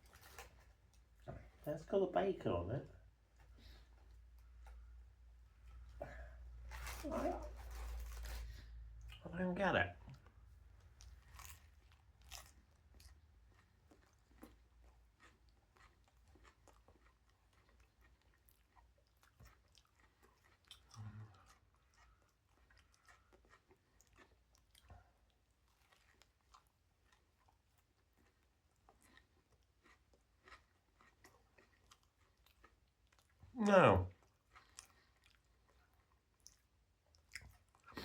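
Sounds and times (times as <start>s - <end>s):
faint chewing of sandwich: 0.0s - 1.9s, 2.8s - 9.3s, 9.9s - 38.0s.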